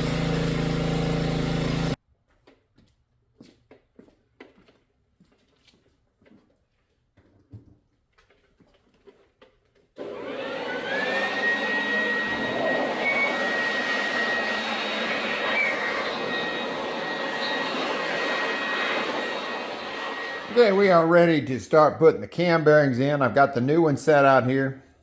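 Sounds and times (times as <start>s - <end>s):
electric motor rushing with whine: 0.0s - 2.0s, 10.0s - 21.0s.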